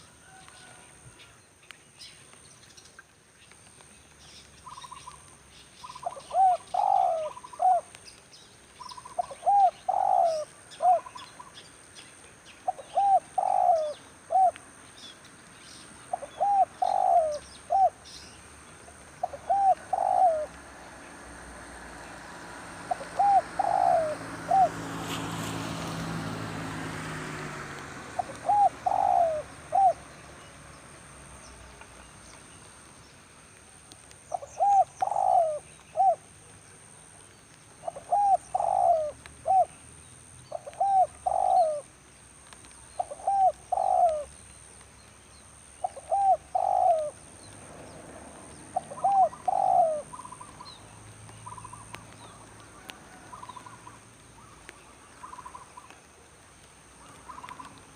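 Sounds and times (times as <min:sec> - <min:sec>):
dove cooing: 0:05.9 - 0:08.0, 0:09.0 - 0:11.5, 0:12.6 - 0:14.6, 0:16.1 - 0:18.0, 0:19.2 - 0:20.6, 0:22.8 - 0:25.0, 0:28.1 - 0:30.2, 0:34.3 - 0:36.3, 0:37.8 - 0:39.8, 0:40.5 - 0:41.9, 0:43.0 - 0:44.3, 0:45.8 - 0:47.5, 0:48.5 - 0:50.8.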